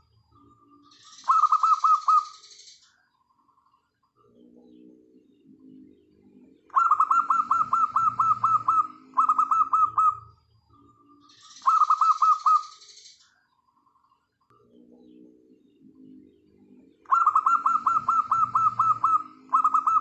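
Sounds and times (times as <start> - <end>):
doves cooing: 1.1 - 2.3, 5.6 - 10.3, 11.6 - 12.7, 16.8 - 20.0.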